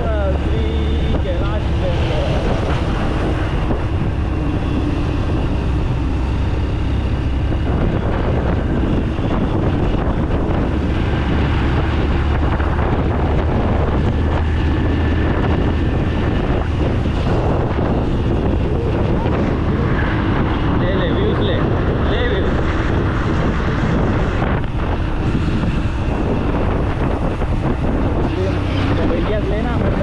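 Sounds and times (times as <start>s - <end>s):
motorcycle engine: 0.0s - 30.0s
wind on microphone: 0.0s - 30.0s.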